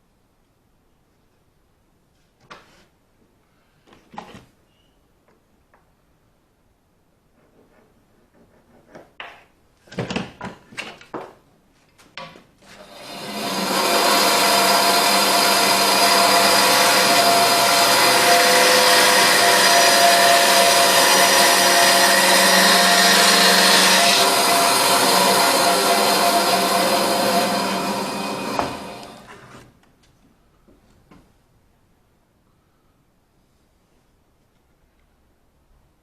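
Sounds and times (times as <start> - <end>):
electric workshop machine running: 12.8 - 29.4.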